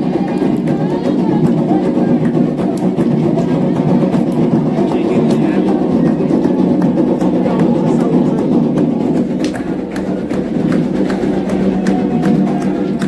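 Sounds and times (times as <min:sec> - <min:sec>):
voices singing: 0:00.0 - 0:10.0
drumming: 0:00.0 - 0:13.0.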